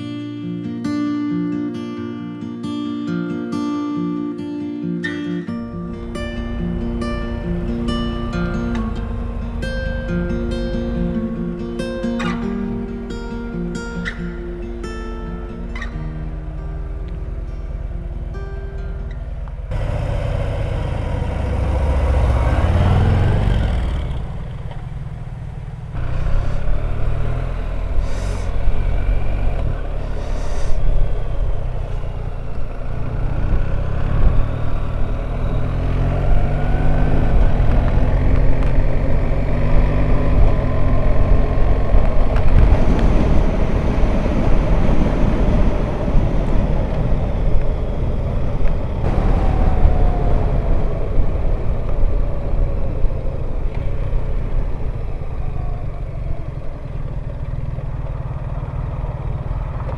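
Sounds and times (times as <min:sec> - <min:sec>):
motorcycle engine running: 0:05.5 - 0:59.9
wind and road noise: 0:05.6 - 0:59.9.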